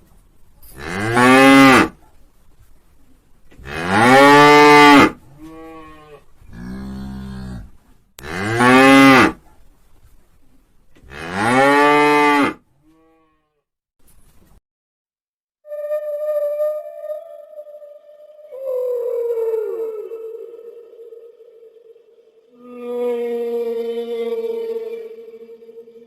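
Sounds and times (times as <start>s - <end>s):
cow mooing: 0.8s - 1.9s, 3.6s - 9.4s, 11.1s - 13.4s.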